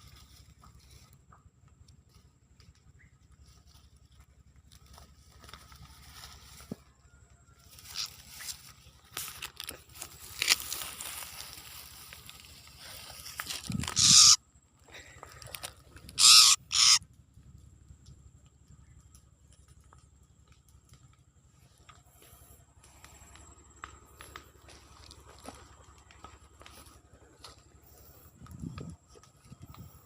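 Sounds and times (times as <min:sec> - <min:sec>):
bird scratching and rustling: 0:07.7 - 0:14.4
harsh hissing bird calls: 0:10.6 - 0:14.4, 0:16.1 - 0:17.0.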